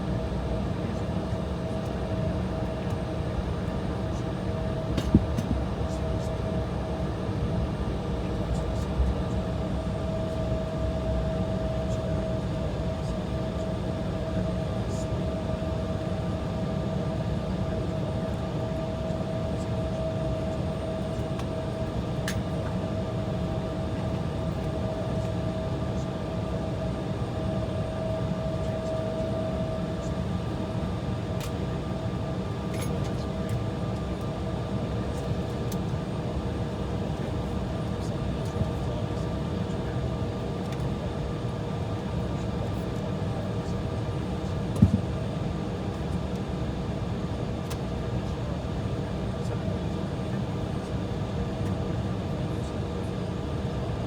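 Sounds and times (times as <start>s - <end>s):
aircraft cabin rumble: 0.2s - 36.0s, 41.9s - 46.6s.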